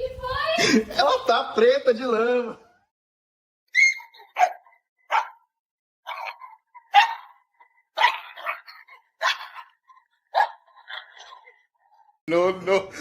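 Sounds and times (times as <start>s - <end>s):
dog barking: 3.8s - 5.5s, 6.1s - 11.4s.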